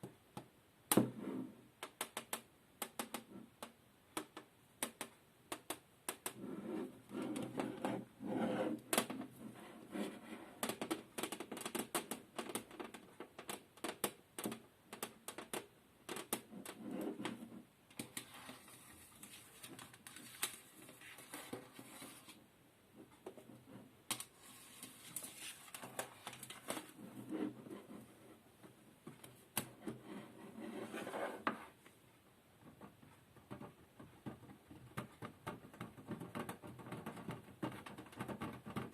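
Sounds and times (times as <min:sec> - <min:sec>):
scratching or rustling: 0:16.2 - 0:22.4, 0:23.0 - 0:31.8.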